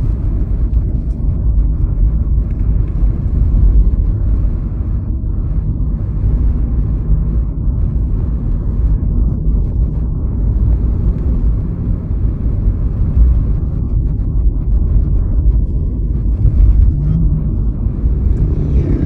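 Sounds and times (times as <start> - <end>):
road and wind noise from vehicle: 0.0 - 19.0.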